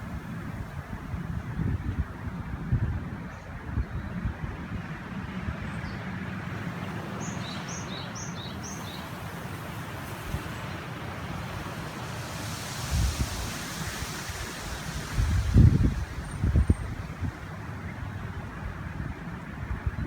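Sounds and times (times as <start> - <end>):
wind rumbling on microphone: 0.0 - 20.0
river rushing: 6.5 - 18.3
bird chirping: 6.8 - 9.3.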